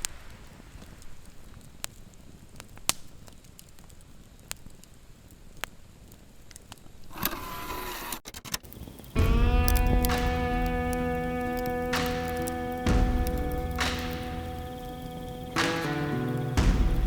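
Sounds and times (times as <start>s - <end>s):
campfire crackling and popping: 0.0s - 7.2s, 8.6s - 17.0s
music: 9.2s - 17.0s.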